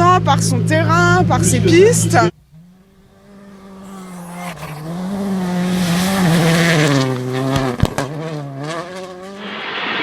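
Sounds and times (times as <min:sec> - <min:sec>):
rally car engine revving: 0:00.3 - 0:10.0
tyres hissing on gravel: 0:02.8 - 0:07.8.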